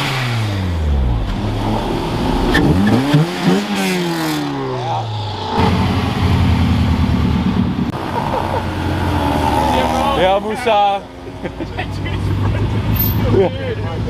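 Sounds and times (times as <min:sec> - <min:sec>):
car engines revving: 0:00.0 - 0:14.0
loud steady exhaust rumble: 0:00.2 - 0:03.9.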